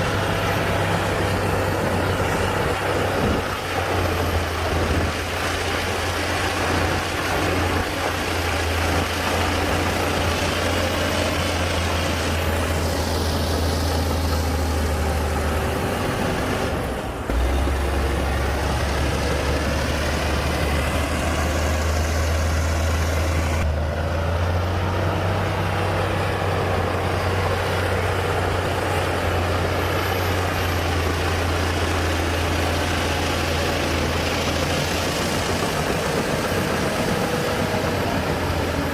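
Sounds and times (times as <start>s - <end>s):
heavy diesel engines humming: 0.0s - 38.9s.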